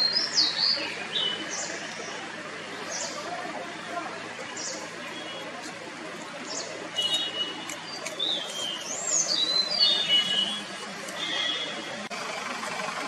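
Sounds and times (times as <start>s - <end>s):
bird singing whistled notes: 6.6s - 10.6s.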